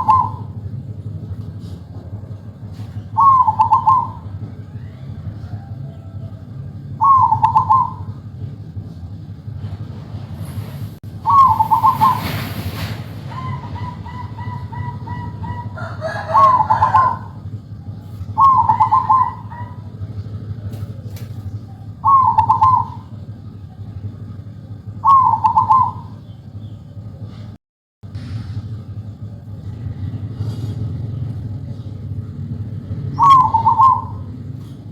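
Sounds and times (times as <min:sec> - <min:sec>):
dove trilling coo: 0:00.0 - 0:00.8, 0:02.6 - 0:08.4, 0:11.2 - 0:12.4, 0:13.2 - 0:23.4, 0:24.8 - 0:26.2, 0:32.8 - 0:34.9
rustling noise: 0:12.0 - 0:13.3.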